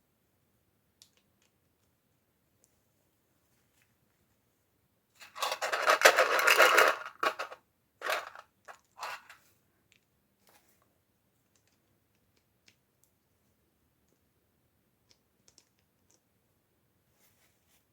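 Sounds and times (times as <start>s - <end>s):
packaging rustling: 5.2s - 8.4s, 9.0s - 9.4s.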